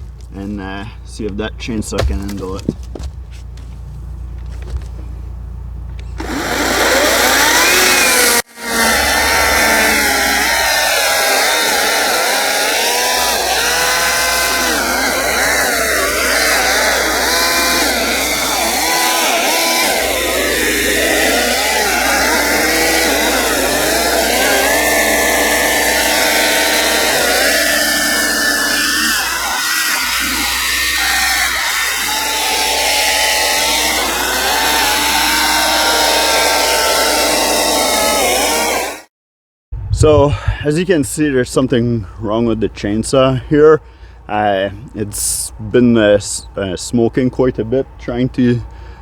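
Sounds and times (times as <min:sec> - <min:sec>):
chainsaw motor and chain whine: 0:05.4 - 0:39.1.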